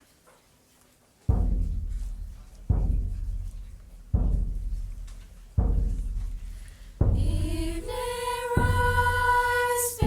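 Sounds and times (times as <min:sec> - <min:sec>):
deep drum stroke ringing: 0:01.3 - 0:10.0.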